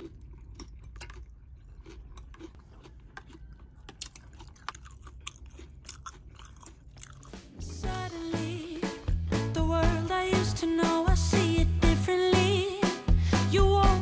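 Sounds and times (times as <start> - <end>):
person chewing food: 0.0 - 7.7.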